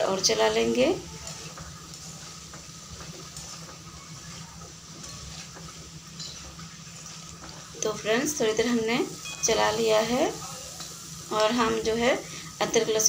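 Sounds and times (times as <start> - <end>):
faint sizzle of frying vegetables: 0.0 - 13.0
spatula scraping and tapping pan: 0.1 - 10.2.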